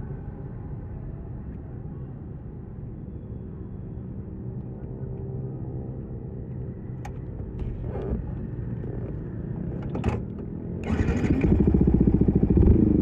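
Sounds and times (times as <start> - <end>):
motorcycle engine at low revs: 7.6 - 13.0.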